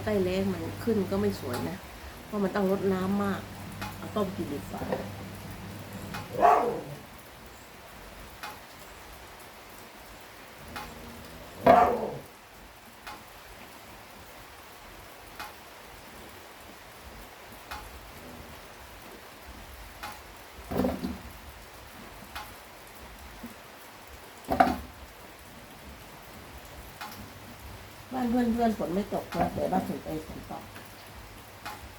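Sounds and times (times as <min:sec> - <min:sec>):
steady rain falling: 0:00.0 - 0:31.9
faint dripping ticks: 0:00.8 - 0:06.8, 0:10.5 - 0:11.6.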